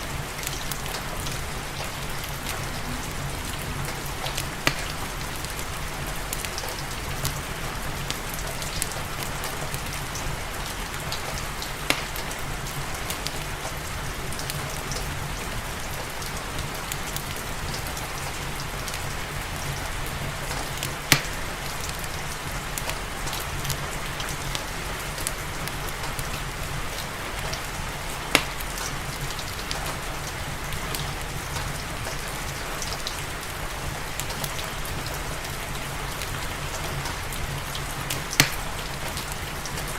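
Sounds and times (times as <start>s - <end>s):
fireplace crackling: 0.0s - 39.9s
steady rain: 0.0s - 39.9s
sharp fire pops: 4.2s - 5.0s, 11.1s - 12.4s, 20.8s - 21.4s, 28.3s - 29.8s, 38.0s - 39.4s.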